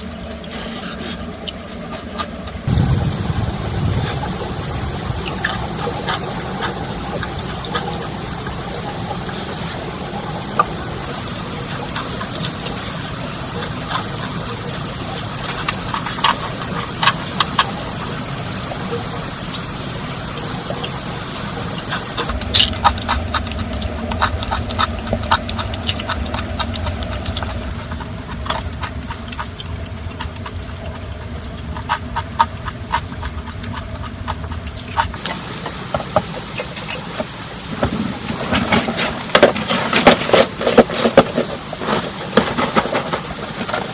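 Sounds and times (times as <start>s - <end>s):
low steady hum: 0.0s - 43.9s
rain hiss: 2.6s - 32.1s, 34.1s - 43.9s
sharp clicks and ticks: 21.8s - 35.3s.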